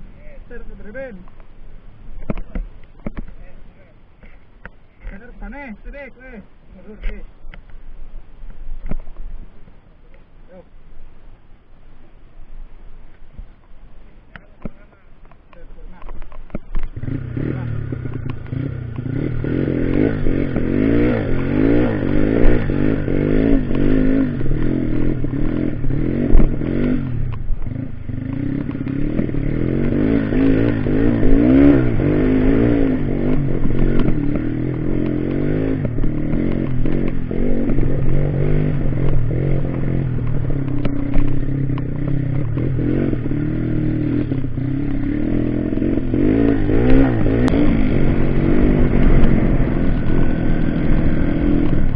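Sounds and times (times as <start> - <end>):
motorcycle engine revving: 14.3 - 51.9.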